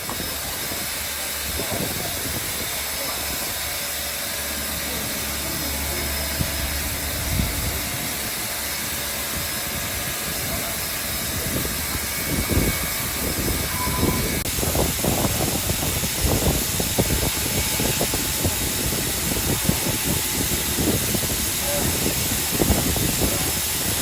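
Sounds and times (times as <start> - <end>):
steam hissing: 0.0 - 24.0
low rumble: 4.4 - 18.3.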